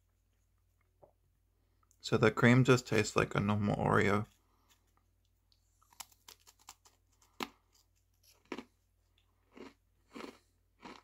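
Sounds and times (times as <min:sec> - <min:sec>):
person chewing crunchy cookie: 0:04.4 - 0:11.0.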